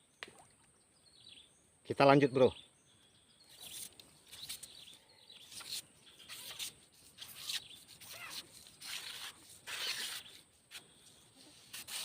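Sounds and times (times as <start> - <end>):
rustling scrapes from handling: 5.5 - 12.0.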